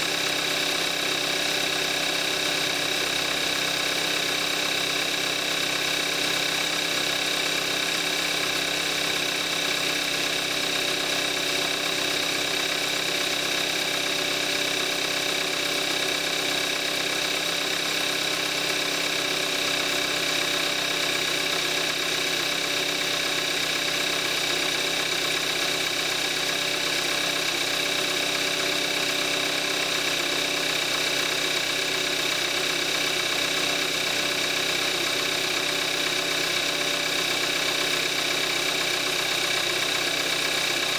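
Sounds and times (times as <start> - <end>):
car engine idling: 17.7 - 40.9.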